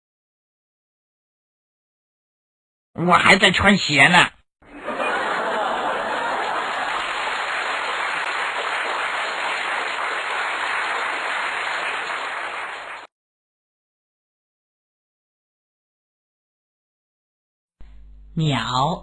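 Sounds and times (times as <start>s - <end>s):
crowd applause: 4.6s - 13.1s.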